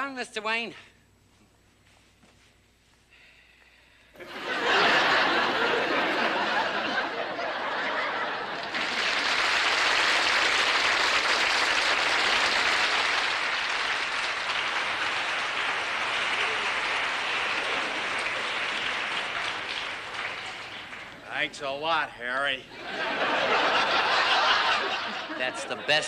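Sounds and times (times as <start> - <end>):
audience laughing: 4.2 - 9.4, 15.5 - 21.2, 22.7 - 26.0
audience applauding: 4.2 - 21.7.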